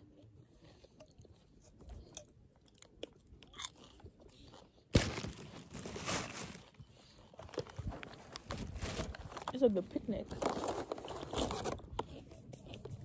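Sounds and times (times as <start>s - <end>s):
potato chips crunching: 2.8s - 8.2s.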